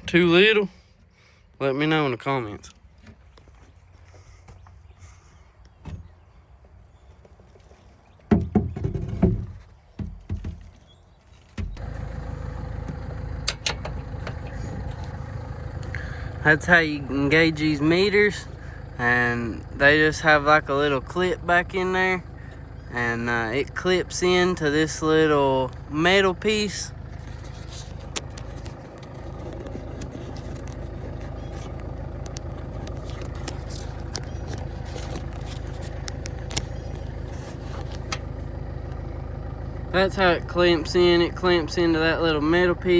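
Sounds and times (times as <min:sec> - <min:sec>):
tractor engine running: 0:00.0 - 0:04.7, 0:05.6 - 0:42.9
metal clunks and knocks: 0:05.8 - 0:06.2, 0:08.2 - 0:12.1, 0:12.7 - 0:14.8.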